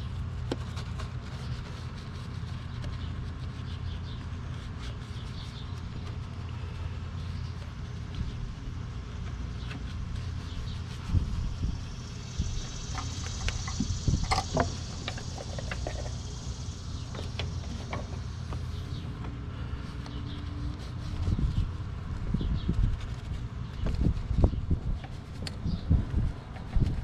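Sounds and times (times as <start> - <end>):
low rumble: 6.0 - 19.3.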